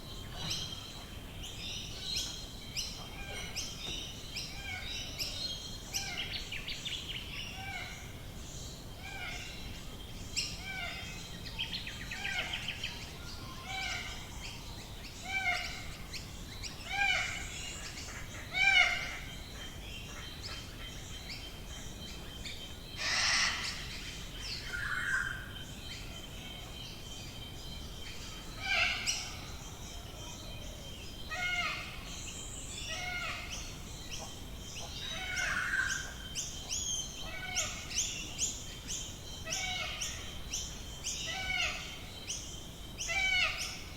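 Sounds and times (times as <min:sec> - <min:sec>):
harsh bird calls: 0:23.0 - 0:25.4.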